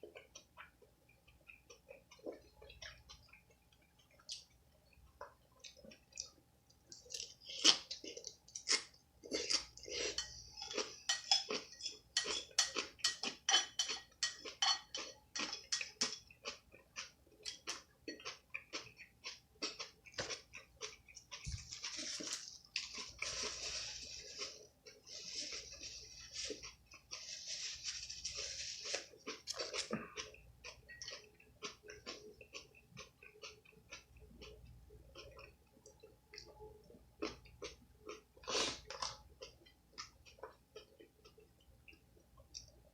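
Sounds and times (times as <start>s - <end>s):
wet chewing with mouth clicks: 0.0s - 42.9s
rustling crunching noise: 21.2s - 30.0s.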